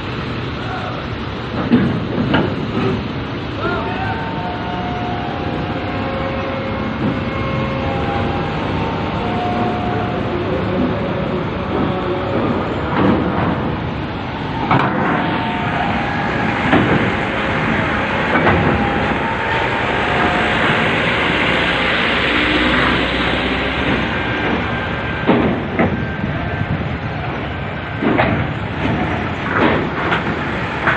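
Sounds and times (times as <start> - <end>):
heavy trucks driving: 0.0 - 30.9
strong wind rushing: 0.0 - 30.9
loud knocks: 23.9 - 26.1.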